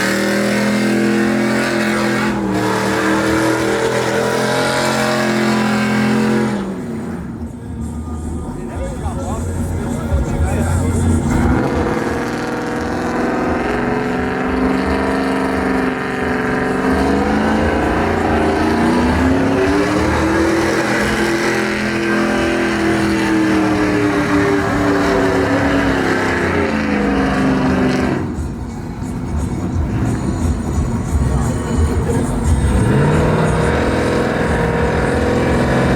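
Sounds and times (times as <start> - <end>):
truck engine revving high: 0.0 - 35.9.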